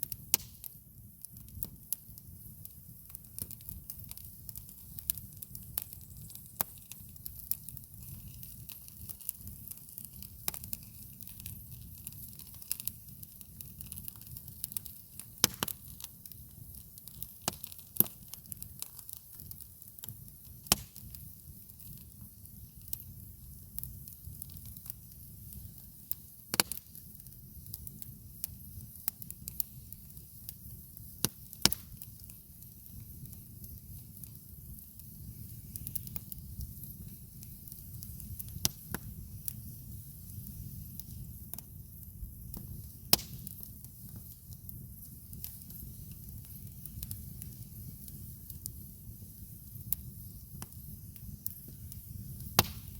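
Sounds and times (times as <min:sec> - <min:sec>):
campfire wood crackling and popping: 0:00.0 - 0:52.9.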